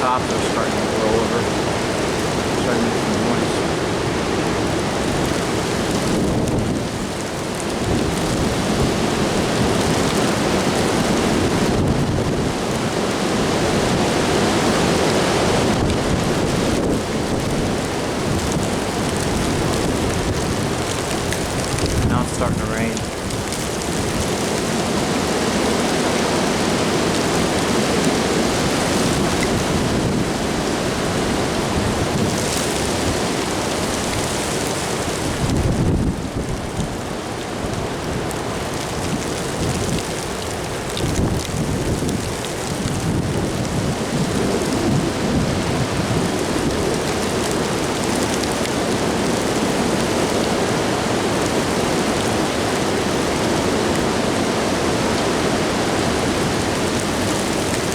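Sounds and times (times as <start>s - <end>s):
rain falling: 0.0s - 57.9s
wind: 0.0s - 57.9s.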